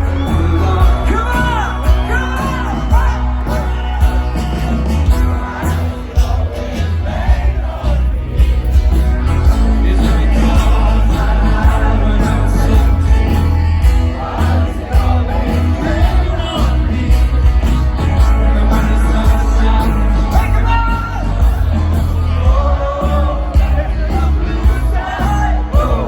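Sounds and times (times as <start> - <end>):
people singing: 0.0 - 26.0
rock band playing: 0.0 - 26.0.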